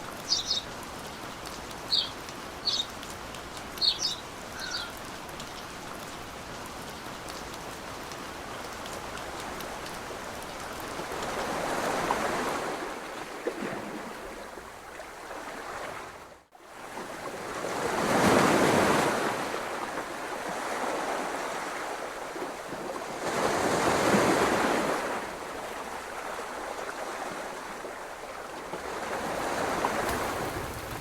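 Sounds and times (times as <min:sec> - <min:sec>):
ocean waves washing in: 0:10.9 - 0:31.0.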